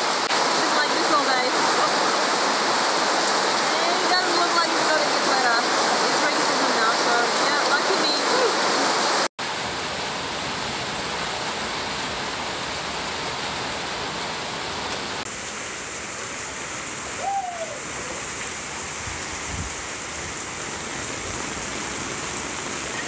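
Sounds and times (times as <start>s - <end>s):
heavy rain pouring: 0.0s - 23.0s
hooting call: 17.2s - 18.3s.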